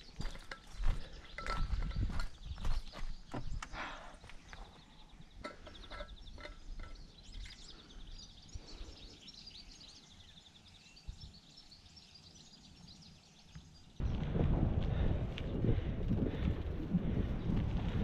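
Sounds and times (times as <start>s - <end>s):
wind noise on microphone: 0.0s - 3.9s, 11.0s - 11.5s, 14.0s - 18.0s
small birds chirping: 0.0s - 14.1s
low outdoor rumble: 14.0s - 18.0s.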